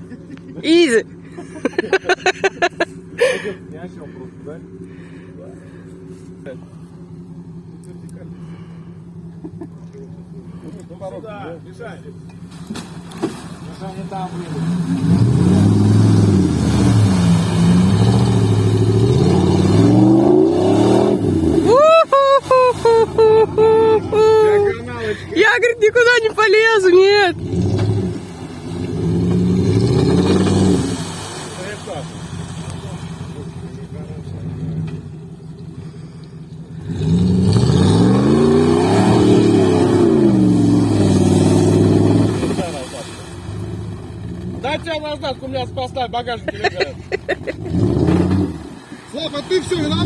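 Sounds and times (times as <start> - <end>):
off-road vehicle engine revving: 0.0 - 50.0
rising vocal cry: 21.5 - 24.9.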